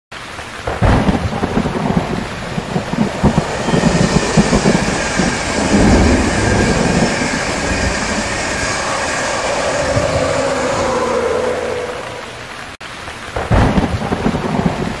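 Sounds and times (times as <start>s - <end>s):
electric train passing at speed: 0.6s - 12.8s
locomotive whine falling in pitch: 1.1s - 12.8s.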